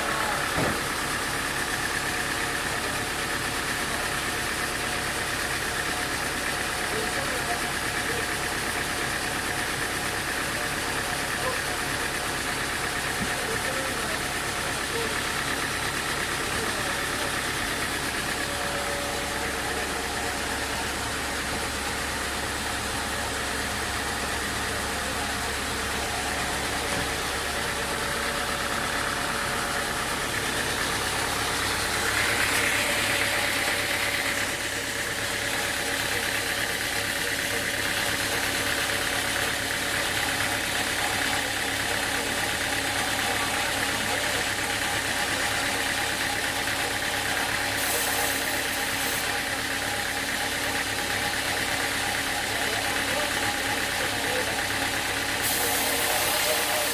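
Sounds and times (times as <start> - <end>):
sawmill machinery humming: 0.0 - 56.9.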